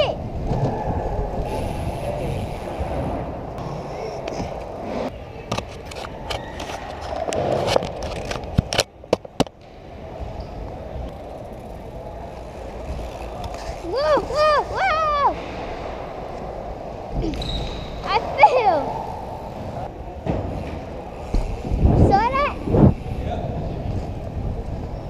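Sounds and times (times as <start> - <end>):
bike tyres rolling on concrete: 0.0 - 25.0
bike clicks and knocks: 5.4 - 12.0.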